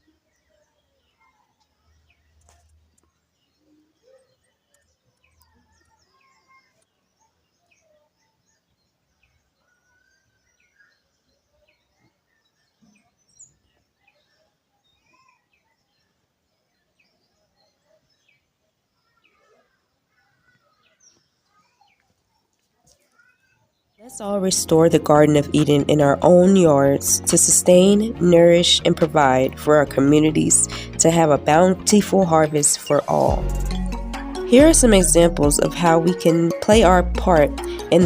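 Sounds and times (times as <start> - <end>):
faint chorus of wild birds: 0.0 - 24.1.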